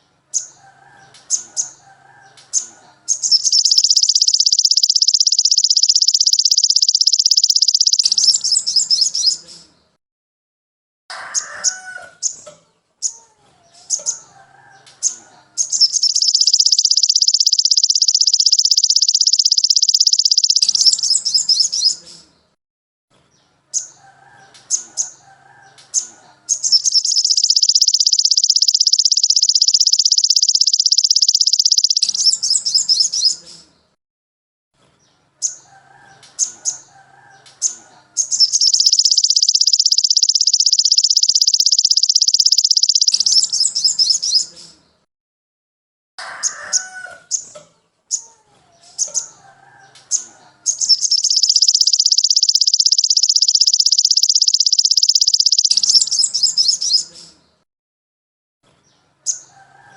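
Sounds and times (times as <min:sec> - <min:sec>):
songbird rapid trill: 0:00.3 - 0:09.4, 0:15.0 - 0:22.0, 0:26.0 - 0:33.6, 0:35.4 - 0:44.5, 0:49.0 - 0:57.3
sharp high bird chips: 0:02.5 - 0:09.5, 0:15.6 - 0:22.0, 0:26.5 - 0:33.6, 0:38.2 - 0:44.5, 0:50.1 - 0:57.2.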